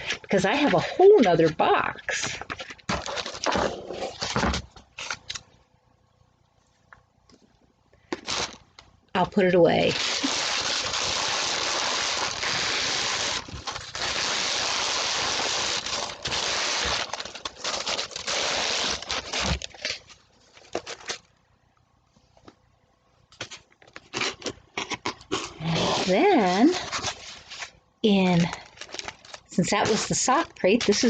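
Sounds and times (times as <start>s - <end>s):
packaging crinkling and rustling: 0.0s - 5.5s, 8.0s - 8.9s, 9.8s - 21.4s, 23.3s - 31.0s.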